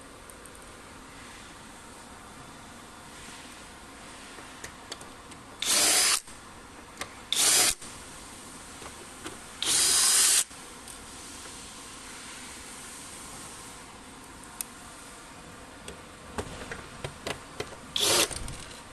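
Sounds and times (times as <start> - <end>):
power drill bursts: 5.6 - 6.2, 7.3 - 7.8, 9.6 - 10.5, 18.0 - 18.4.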